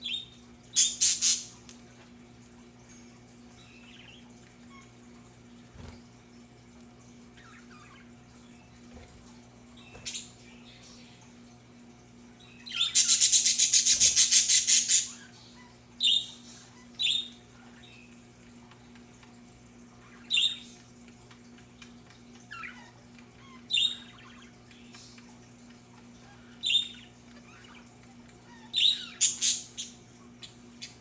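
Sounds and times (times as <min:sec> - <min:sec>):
budgerigar chirps: 0:00.8 - 0:01.6, 0:12.7 - 0:15.2
budgerigars chattering: 0:00.8 - 0:01.6, 0:12.7 - 0:15.2.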